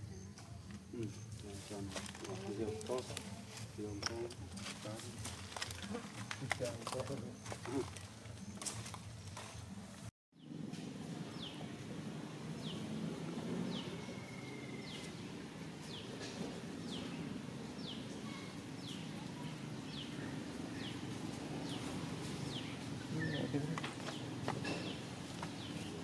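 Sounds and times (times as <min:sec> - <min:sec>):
bird chirping: 0:11.2 - 0:26.0.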